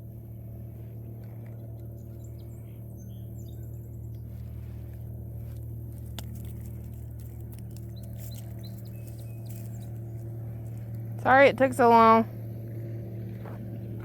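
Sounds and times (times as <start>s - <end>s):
low motor hum: 0.0s - 14.0s
small bird chirping: 1.5s - 4.9s, 7.7s - 10.9s.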